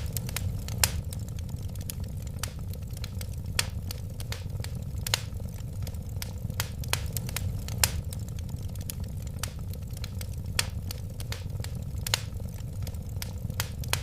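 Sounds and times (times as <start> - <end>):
flames rumbling: 0.0 - 14.0
wood fire crackling: 0.0 - 14.0.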